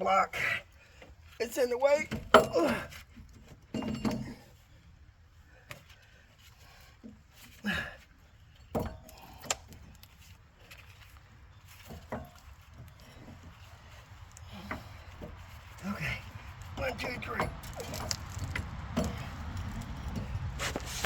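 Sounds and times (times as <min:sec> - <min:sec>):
tools and parts knocking: 0:16.7 - 0:20.8.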